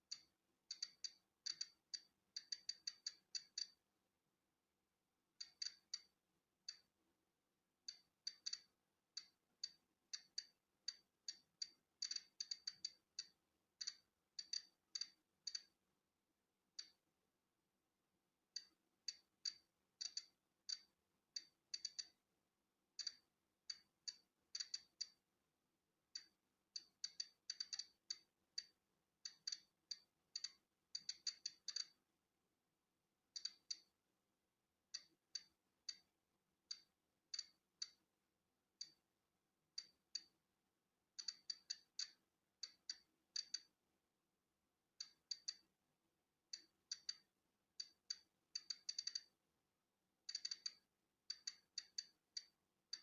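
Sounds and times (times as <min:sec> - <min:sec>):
geiger counter clicking: 0:00.0 - 0:03.8, 0:05.4 - 0:06.1, 0:07.9 - 0:15.8, 0:16.8 - 0:17.0, 0:18.6 - 0:22.2, 0:23.0 - 0:25.2, 0:26.2 - 0:32.0, 0:33.3 - 0:33.9, 0:34.9 - 0:36.1, 0:36.7 - 0:38.0, 0:38.8 - 0:39.0, 0:39.8 - 0:40.4, 0:41.2 - 0:43.7, 0:45.0 - 0:45.7, 0:46.5 - 0:49.3, 0:50.3 - 0:53.0.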